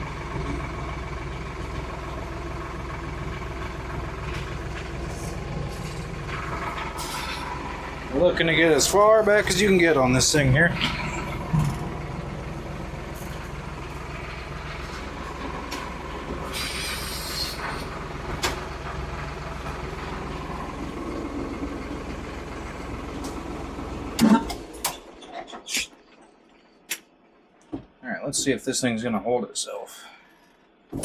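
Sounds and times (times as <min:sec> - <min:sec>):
tractor diesel engine running: 0:00.0 - 0:27.7
brief hiss: 0:16.5 - 0:17.8.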